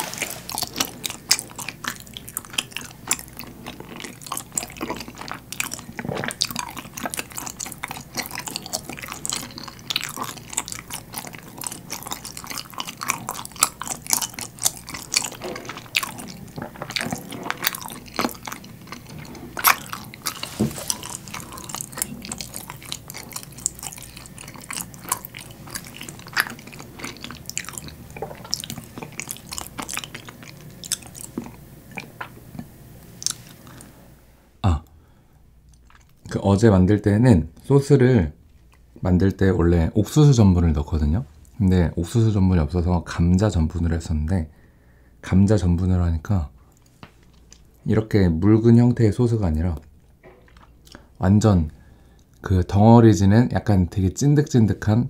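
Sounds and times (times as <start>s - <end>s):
close chewing with mouth clicks: 0.0s - 33.9s, 35.6s - 36.4s, 46.6s - 47.9s, 49.8s - 51.2s.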